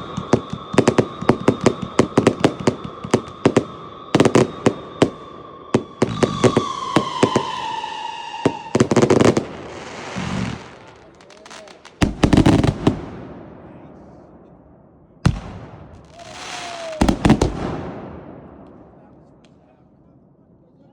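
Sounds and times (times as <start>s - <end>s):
crackling hiss: 0.0s - 12.8s, 15.3s - 17.8s
firework whistle: 0.0s - 12.8s, 15.3s - 18.6s
firework bangs: 0.0s - 14.5s, 15.2s - 19.7s.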